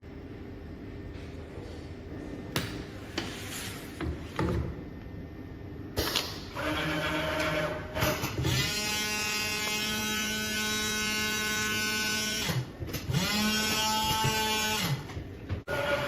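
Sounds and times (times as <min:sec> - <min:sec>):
pitched motor sound: 0:06.6 - 0:16.0.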